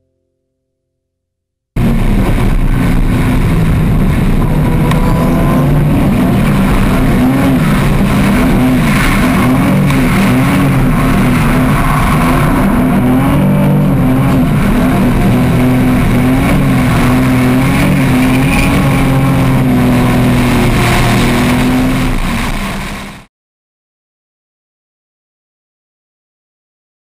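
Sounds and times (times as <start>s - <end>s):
car engine at high revs: 1.8s - 23.3s.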